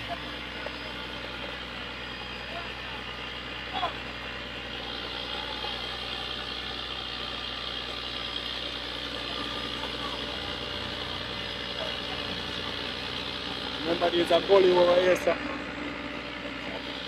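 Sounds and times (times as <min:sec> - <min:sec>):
paving machine engine running: 0:00.0 - 0:17.0.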